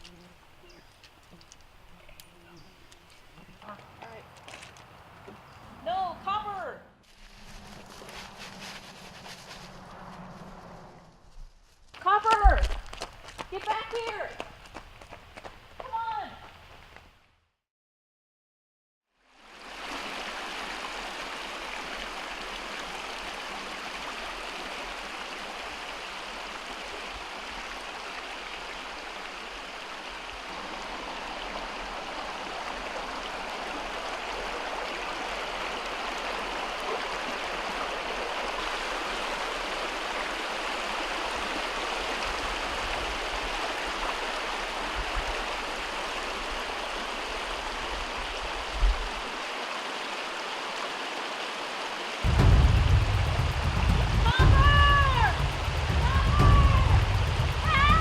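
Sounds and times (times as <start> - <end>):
low rumble: 7.3 - 11.6, 52.3 - 58.0
running water rushing: 19.2 - 58.0.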